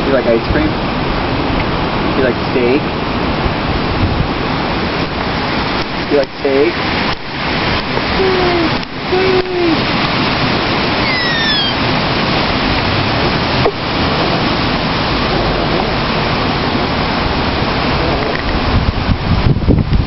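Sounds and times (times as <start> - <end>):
storm wind rushing: 0.0 - 20.0
high gliding chirp: 11.0 - 11.8.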